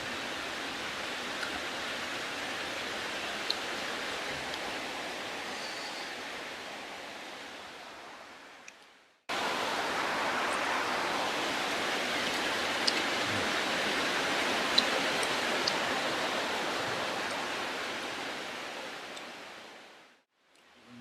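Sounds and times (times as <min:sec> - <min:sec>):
heavy rain hissing: 0:00.0 - 0:08.1, 0:09.3 - 0:19.8.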